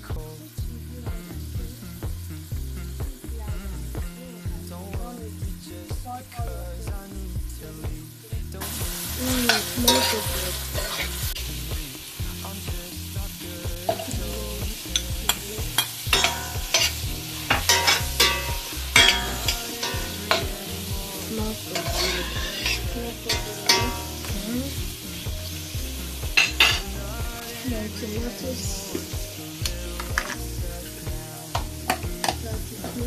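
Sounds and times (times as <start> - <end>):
food sizzling in a pan: 0.0 - 33.0
spoon scraping and clinking on pan: 9.5 - 11.1, 14.9 - 20.6, 21.7 - 24.3, 26.4 - 26.9.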